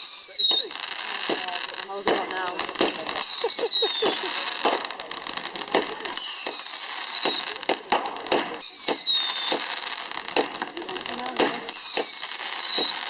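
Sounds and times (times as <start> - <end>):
firework whistles falling in pitch: 0.0 - 0.8, 3.1 - 4.3, 6.1 - 7.6, 8.6 - 9.8, 11.6 - 13.0
firework pops and bangs: 0.0 - 13.0.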